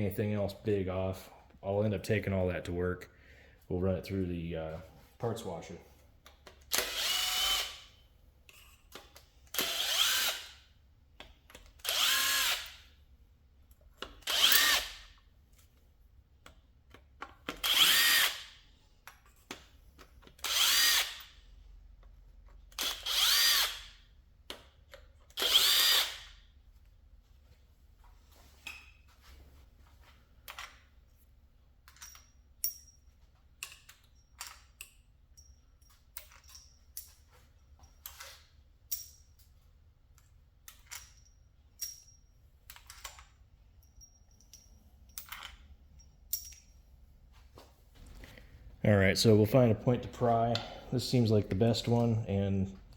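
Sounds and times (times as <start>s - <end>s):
impact tool whining bursts: 9.6s - 10.6s, 11.8s - 12.8s.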